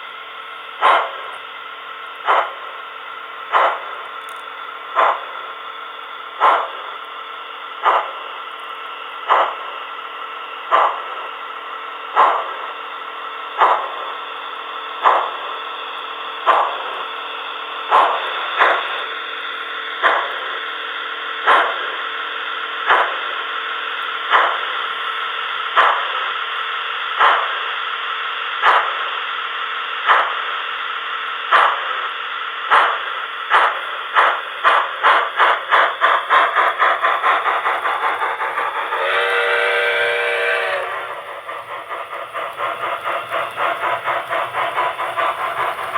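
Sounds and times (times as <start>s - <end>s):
steam hiss: 0.0s - 45.9s
steam locomotive chuffing: 0.0s - 45.9s
steam whistle blast: 38.6s - 41.6s.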